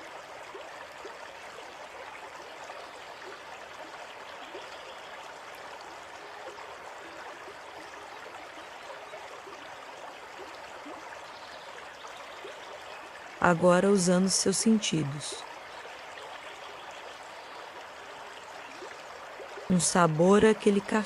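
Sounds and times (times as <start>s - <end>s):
running water trickling: 0.0s - 21.0s.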